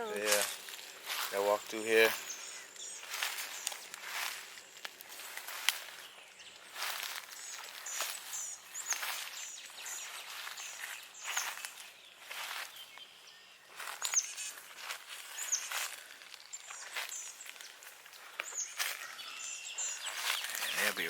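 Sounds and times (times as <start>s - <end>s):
footsteps crunching through dry brush: 0.0s - 21.0s
bird short high chirps: 13.9s - 14.6s.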